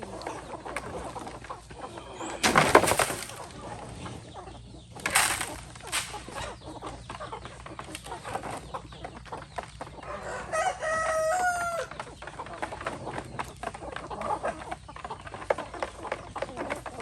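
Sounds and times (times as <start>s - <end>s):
chickens clucking: 0.0s - 17.0s
rustling: 2.2s - 4.1s, 4.9s - 6.6s.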